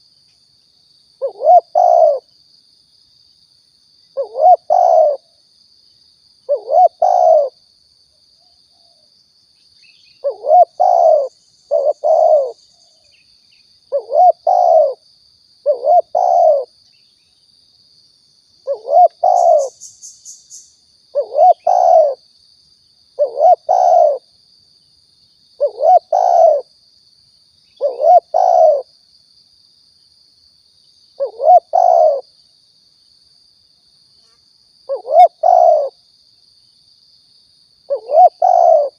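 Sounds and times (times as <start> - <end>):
dove cooing: 1.2 - 2.3, 4.2 - 5.3, 6.5 - 7.6, 10.2 - 12.6, 13.9 - 15.0, 15.6 - 16.7, 18.6 - 19.8, 21.1 - 22.2, 23.2 - 24.3, 25.6 - 26.7, 27.8 - 28.9, 31.2 - 32.2, 34.9 - 36.0, 37.9 - 38.9.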